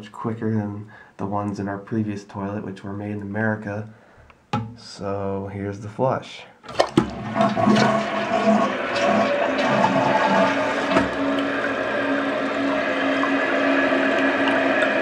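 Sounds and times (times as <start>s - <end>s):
toilet water rushing: 6.7s - 15.0s.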